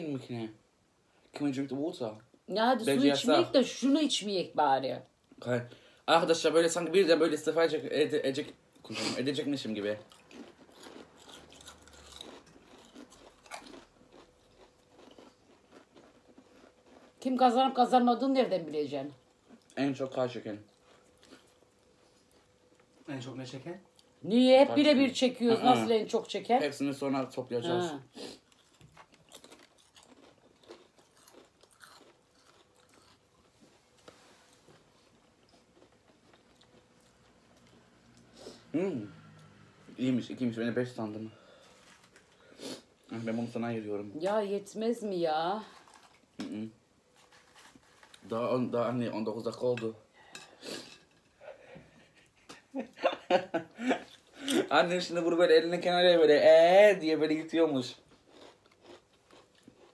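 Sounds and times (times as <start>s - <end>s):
crisps crunching: 9.9s - 17.2s, 28.5s - 33.6s, 47.2s - 48.6s, 58.2s - 59.9s.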